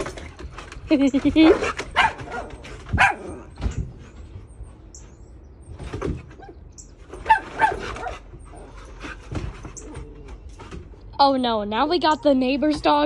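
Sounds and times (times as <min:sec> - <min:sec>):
dog barking: 0:02.0 - 0:03.3, 0:07.2 - 0:08.2.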